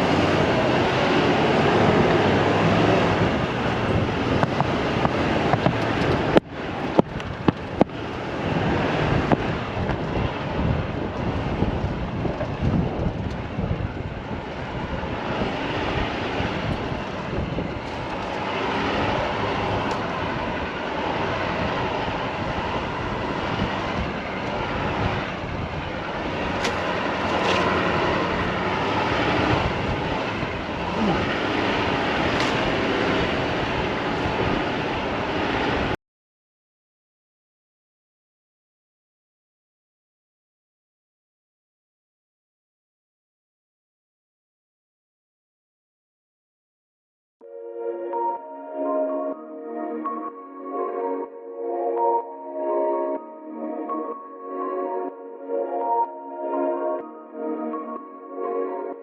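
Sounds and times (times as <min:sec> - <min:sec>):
vehicle engine rumbling: 0:00.0 - 0:36.0
wind buffeting microphone: 0:00.0 - 0:36.0.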